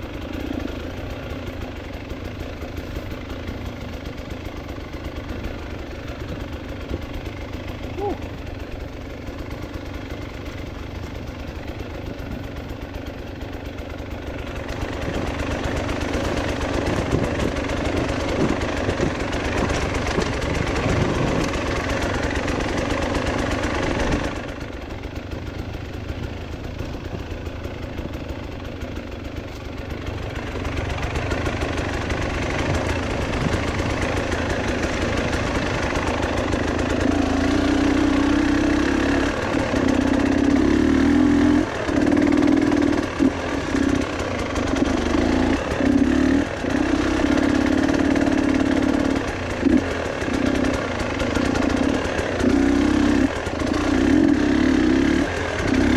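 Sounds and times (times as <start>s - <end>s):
vehicle engine revving: 14.6s - 24.4s, 30.4s - 55.9s.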